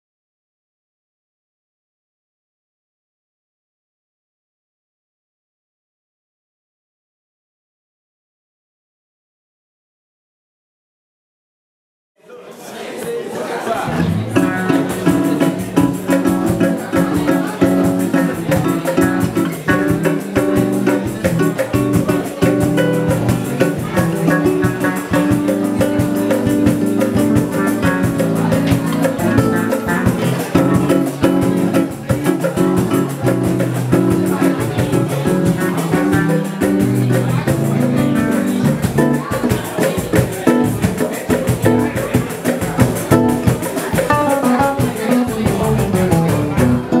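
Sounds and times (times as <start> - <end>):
guitar: 13.8 - 47.0
drum kit beat: 13.9 - 47.0.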